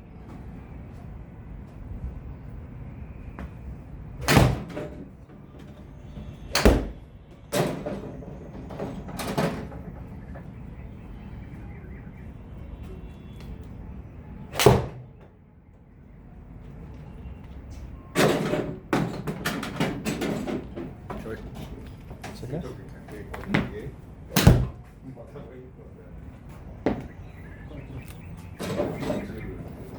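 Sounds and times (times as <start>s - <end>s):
low background hum: 0.0s - 29.9s
golf clubs striking balls: 14.5s - 15.1s, 24.3s - 24.8s.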